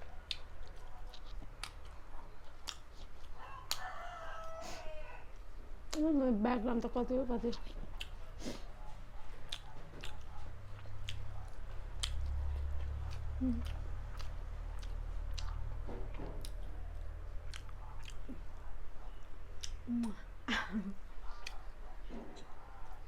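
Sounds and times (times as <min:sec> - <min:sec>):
person chewing: 0:00.0 - 0:06.1, 0:07.5 - 0:20.4, 0:21.1 - 0:23.0
wet mouth clicks and smacks: 0:11.0 - 0:12.4.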